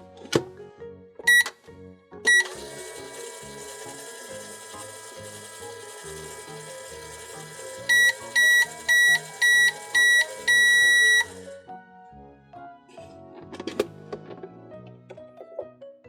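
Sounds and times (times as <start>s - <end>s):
background music: 0.0s - 16.0s
microwave timer beeping: 1.3s - 1.6s, 2.3s - 11.6s.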